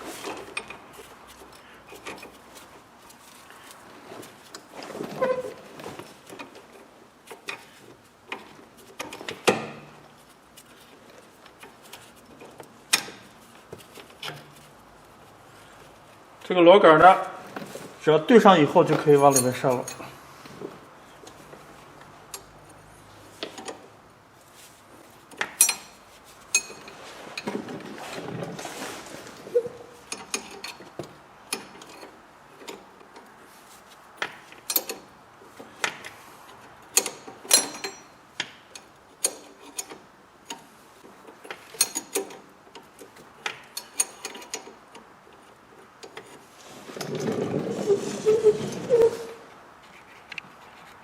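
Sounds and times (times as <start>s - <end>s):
rattling scraping: 46.2s - 50.3s.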